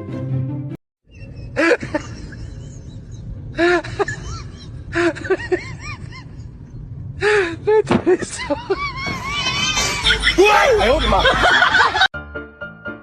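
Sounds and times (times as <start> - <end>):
music: 0.0 - 0.8, 12.2 - 13.0.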